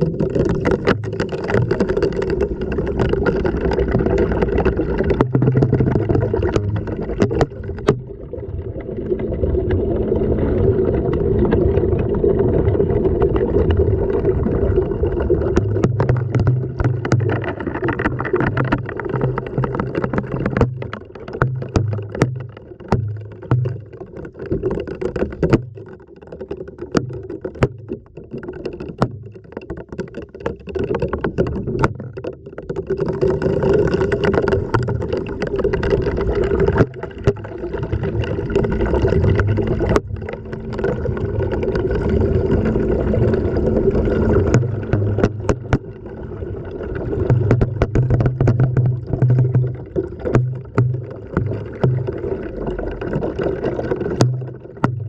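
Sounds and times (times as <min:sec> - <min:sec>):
water sloshing and churning: 0:00.0 - 0:55.0
camera knocking against drum: 0:19.8 - 0:23.9, 0:44.5 - 0:45.8, 0:47.3 - 0:52.0.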